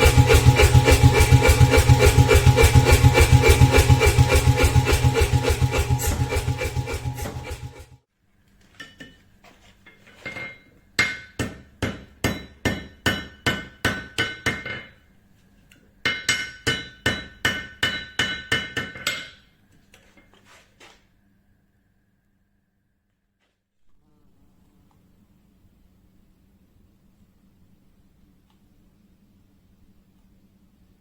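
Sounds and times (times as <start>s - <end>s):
hammer striking hot steel: 0.0s - 8.0s, 11.0s - 14.7s.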